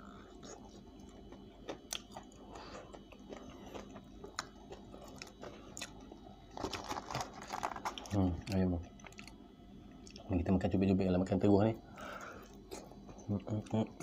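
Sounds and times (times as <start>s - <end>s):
person chewing crispy food: 0.0s - 9.4s, 12.0s - 13.8s.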